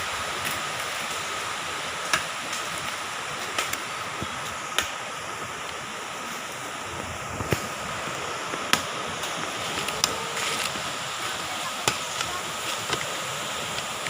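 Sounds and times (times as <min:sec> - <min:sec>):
brush cutter running: 0:07.4 - 0:14.0.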